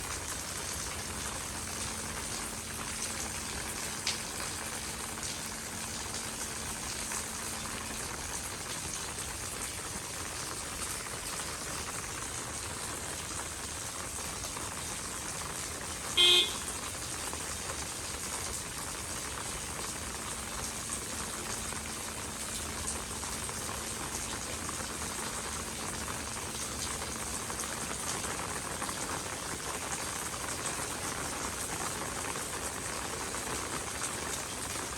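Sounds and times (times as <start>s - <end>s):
rain on pavement: 0.0s - 34.9s
short beep: 16.2s - 16.7s.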